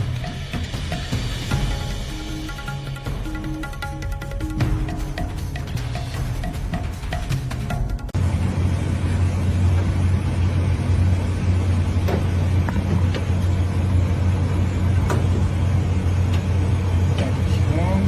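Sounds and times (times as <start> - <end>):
vehicle engine drone: 8.2 - 18.0.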